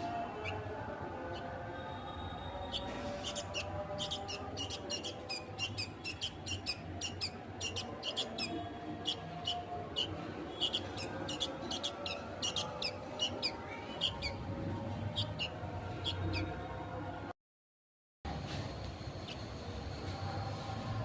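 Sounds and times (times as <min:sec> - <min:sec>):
bird chick begging calls: 0:02.7 - 0:14.4.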